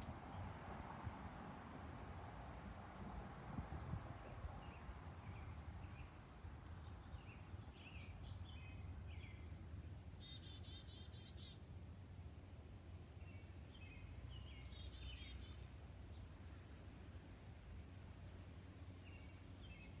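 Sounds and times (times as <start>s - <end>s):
birds chirping: 4.2s - 11.6s, 13.2s - 16.6s, 18.9s - 20.0s
bird trill: 10.1s - 11.6s.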